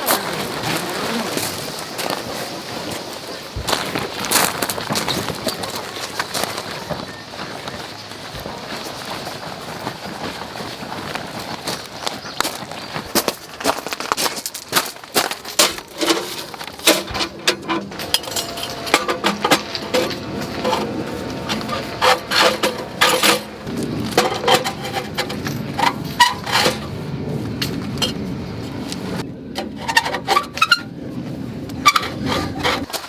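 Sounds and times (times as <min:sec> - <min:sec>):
metallic clinks and rattles: 0:15.3 - 0:26.9.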